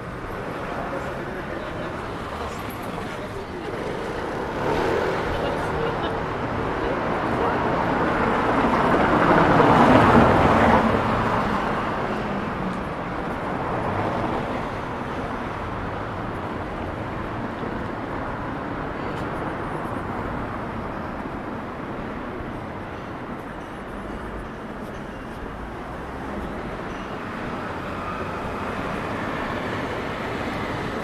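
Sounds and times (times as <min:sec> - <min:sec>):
city traffic noise: 0:00.0 - 0:31.0
vehicle passing close: 0:02.3 - 0:12.0.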